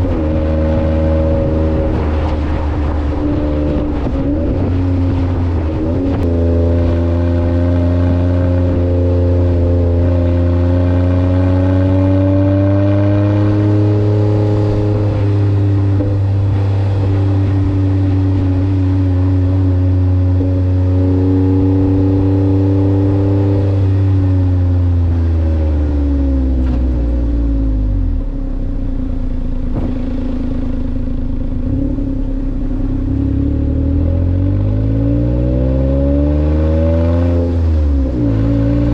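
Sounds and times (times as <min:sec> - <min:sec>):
small engine revving and idling: 0:21.2 - 0:38.9.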